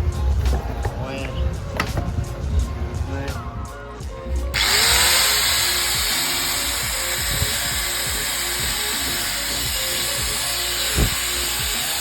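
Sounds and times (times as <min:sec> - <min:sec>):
angle grinder whining: 0:04.5 - 0:12.0.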